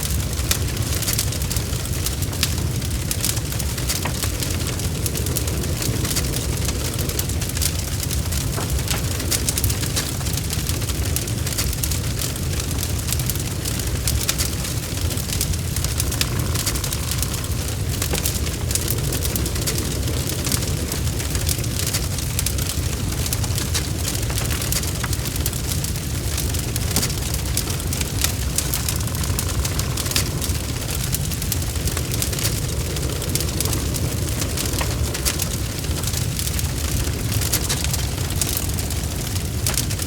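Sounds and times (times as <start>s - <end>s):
low fire rumble: 0.0s - 40.0s
wood fire crackling and popping: 0.0s - 40.0s.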